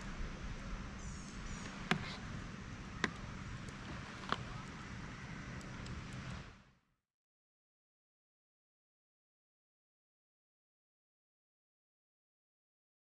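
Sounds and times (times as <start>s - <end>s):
outdoor background hiss: 0.0s - 6.9s.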